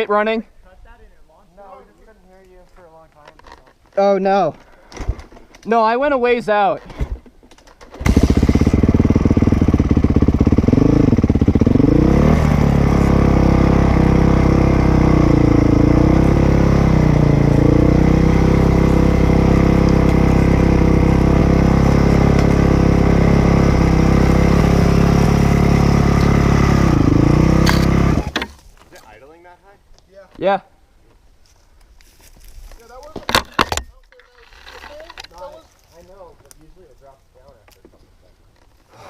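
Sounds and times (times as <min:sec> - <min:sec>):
dirt bike engine fast idle: 0:08.0 - 0:15.8.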